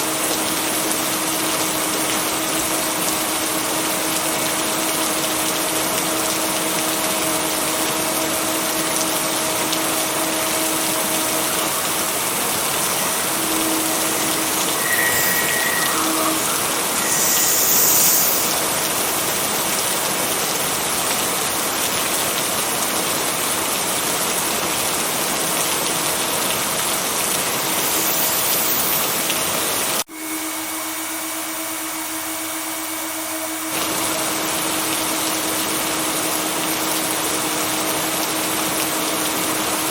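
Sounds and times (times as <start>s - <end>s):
heavy rain: 0.0s - 30.0s.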